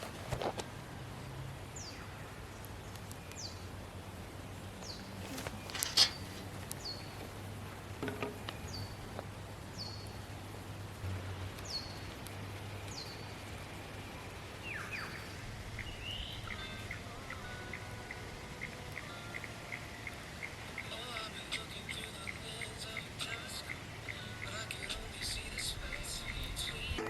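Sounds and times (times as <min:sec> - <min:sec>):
bird chirping: 0:01.1 - 0:07.5, 0:08.3 - 0:27.0
birds whistling: 0:04.8 - 0:07.3, 0:12.9 - 0:27.0.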